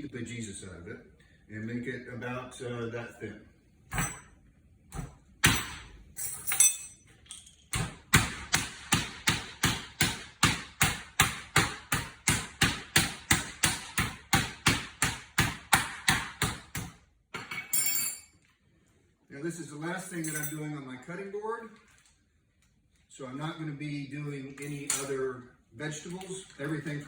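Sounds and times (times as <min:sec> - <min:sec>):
meat pounding thuds on cutting board: 0:07.8 - 0:17.0.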